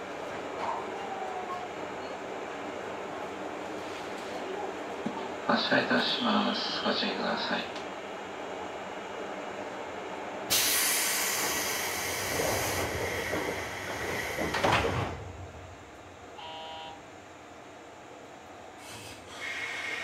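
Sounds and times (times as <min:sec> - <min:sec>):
compressed air hiss: 0:10.5 - 0:14.7, 0:18.8 - 0:20.0
train motor whine: 0:10.5 - 0:17.1.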